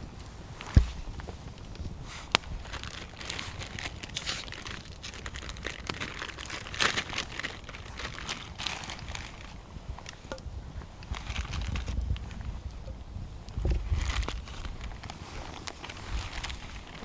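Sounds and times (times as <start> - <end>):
packaging crinkling: 2.1 - 10.4, 11.0 - 12.5, 13.8 - 17.0.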